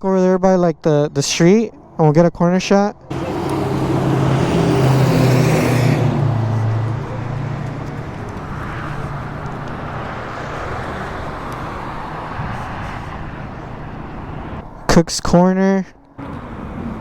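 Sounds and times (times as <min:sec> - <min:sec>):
steady road noise: 0:00.0 - 0:17.0
vehicle engine hum: 0:02.9 - 0:14.9, 0:16.0 - 0:17.0.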